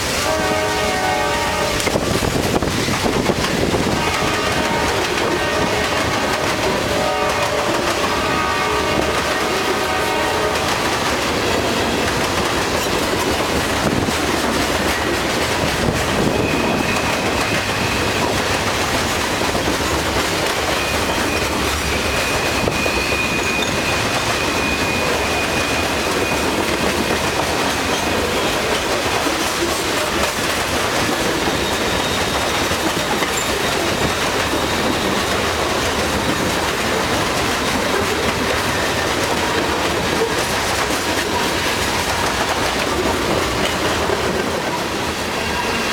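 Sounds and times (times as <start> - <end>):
freight train rattling past: 0.0 - 45.9
high wheel squeals: 16.1 - 18.6, 20.3 - 28.9, 31.1 - 38.0, 44.6 - 45.9.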